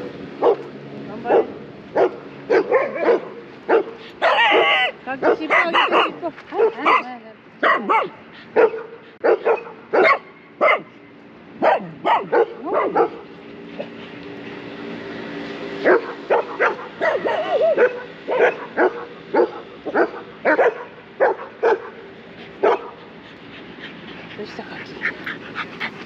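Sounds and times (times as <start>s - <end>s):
dog barking: 0.4s - 0.6s, 1.2s - 10.9s, 11.6s - 13.2s, 15.8s - 22.0s, 22.6s - 23.0s
dog whining: 17.0s - 18.0s.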